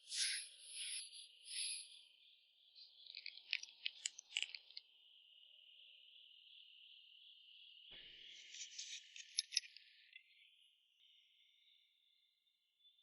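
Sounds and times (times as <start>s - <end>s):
insects chirping: 0.0s - 7.9s.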